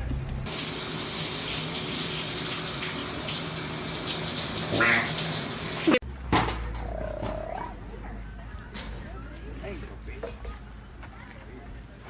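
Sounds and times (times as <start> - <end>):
running water: 0.5 - 6.0.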